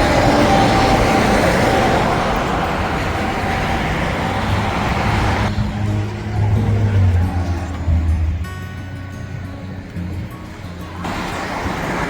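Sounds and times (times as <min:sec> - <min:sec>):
highway traffic passing: 0:00.0 - 0:12.0.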